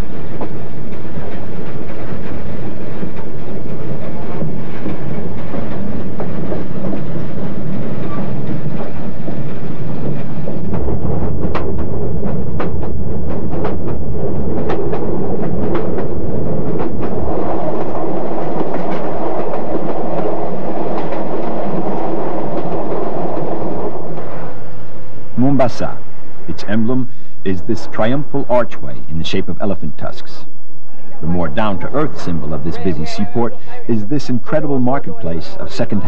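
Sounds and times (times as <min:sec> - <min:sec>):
wheels clicking over rail joints: 0:00.0 - 0:23.4
train rumble: 0:00.0 - 0:36.0.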